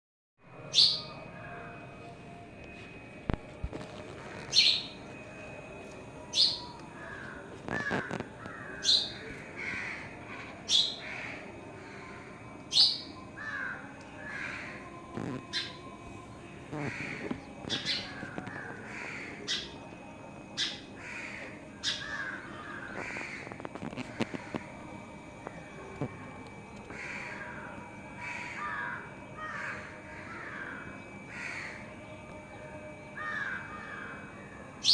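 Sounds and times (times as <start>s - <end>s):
birds calling: 0.6s - 1.3s, 4.0s - 5.2s, 6.2s - 16.0s, 16.7s - 19.9s, 20.6s - 24.8s
crows cawing: 6.4s - 16.0s, 16.7s - 19.8s, 20.5s - 32.0s, 33.2s - 34.9s.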